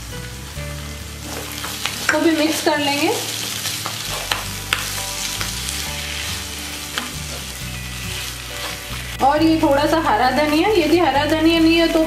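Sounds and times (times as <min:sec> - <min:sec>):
vegetables sizzling in oil: 0:00.0 - 0:12.0
wooden spatula stirring and scraping: 0:00.6 - 0:12.0
spatula tapping pan: 0:03.4 - 0:06.1, 0:06.8 - 0:07.5.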